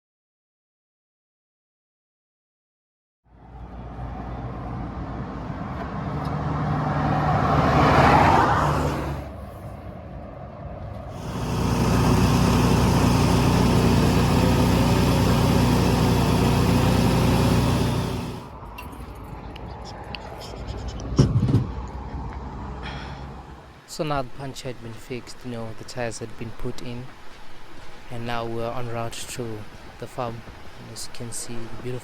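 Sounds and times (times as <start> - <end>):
tractor engine running: 11.1 - 19.0.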